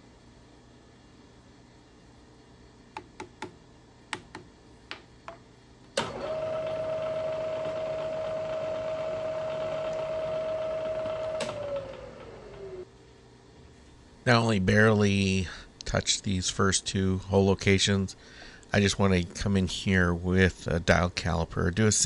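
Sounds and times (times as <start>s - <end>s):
milling machine spindle motor humming: 6.0s - 12.9s.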